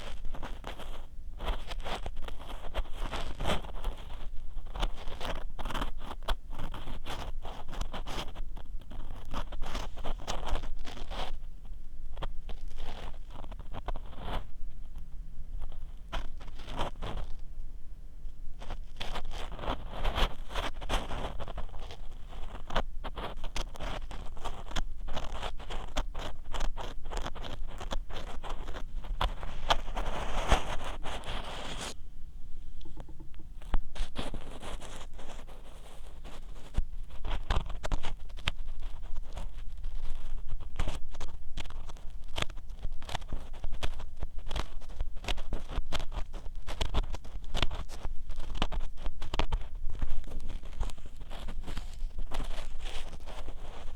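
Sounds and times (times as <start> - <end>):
ear pick scratching microphone: 0.0 - 53.9
low handling rumble: 32.0 - 34.1.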